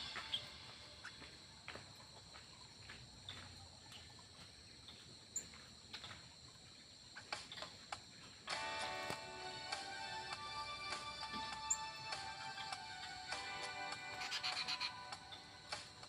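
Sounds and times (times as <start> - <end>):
bird chirps and clicks: 7.1 - 8.1
high-pitched drone: 8.5 - 16.0.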